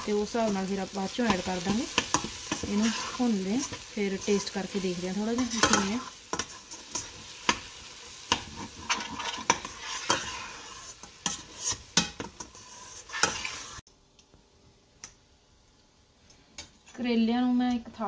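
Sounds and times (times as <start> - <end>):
masala sizzling in oil: 0.0 - 13.9
spatula scraping a metal pot: 1.3 - 4.7, 5.3 - 7.7, 8.3 - 13.8.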